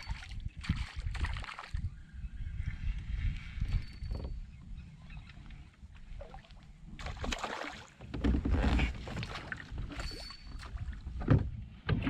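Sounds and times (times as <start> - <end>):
water splashing around a kayak: 0.0 - 1.9, 6.0 - 12.0.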